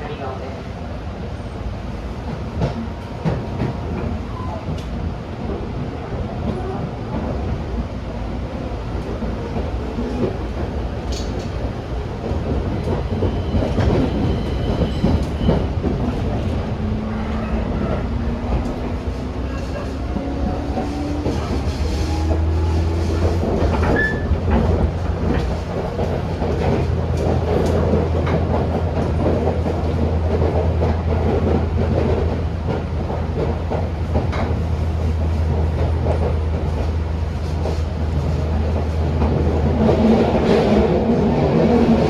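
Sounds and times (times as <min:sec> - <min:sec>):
train wheels rumbling on rail: 0:00.0 - 0:42.0
train wheel squeal: 0:12.8 - 0:16.4, 0:23.6 - 0:25.2.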